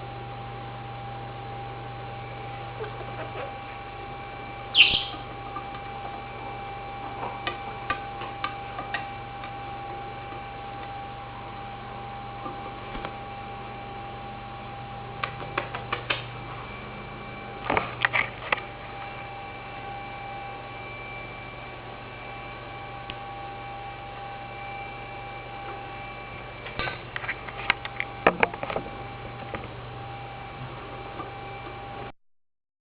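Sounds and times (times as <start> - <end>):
steady electrical hum: 0.0 - 32.1.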